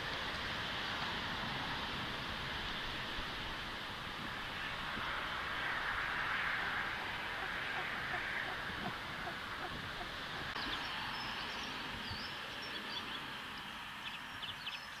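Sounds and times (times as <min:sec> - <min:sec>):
microphone hiss: 0:00.0 - 0:15.0
small birds chirping: 0:06.6 - 0:15.0.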